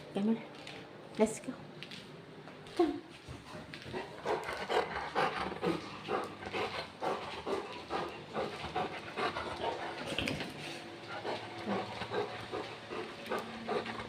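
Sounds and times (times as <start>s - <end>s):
dog panting fast: 3.3s - 14.0s.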